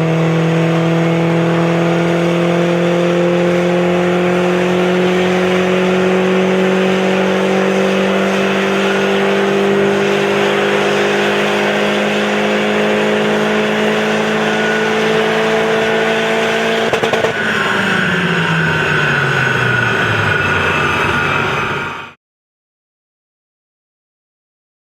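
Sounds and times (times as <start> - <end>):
car engine revving at full throttle: 0.0 - 22.2
high whine: 12.5 - 22.2
exhaust crackle: 16.3 - 22.1.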